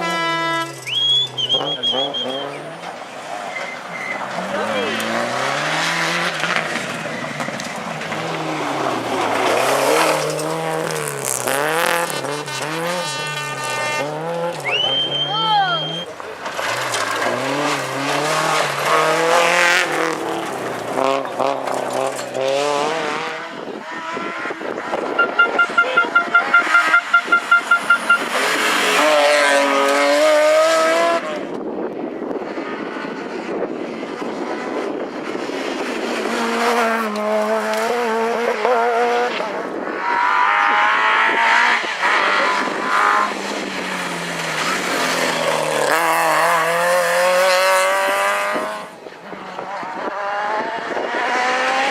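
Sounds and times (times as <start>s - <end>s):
tyre noise: 0.0s - 26.9s
rally car engines revving: 0.0s - 51.9s.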